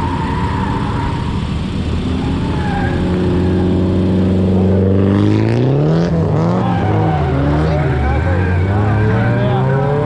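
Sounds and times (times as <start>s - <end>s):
car engine running hard: 0.0s - 10.0s.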